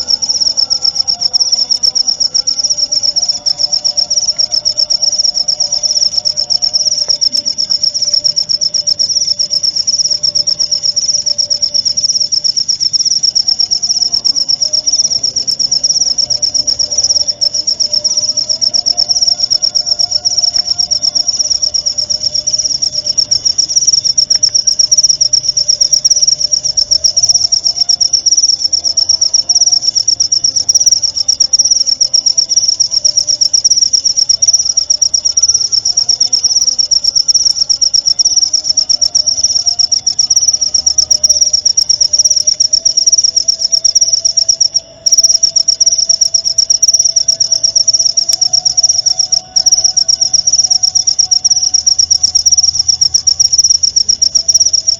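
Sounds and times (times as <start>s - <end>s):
cricket chirping trill: 0.0s - 54.9s.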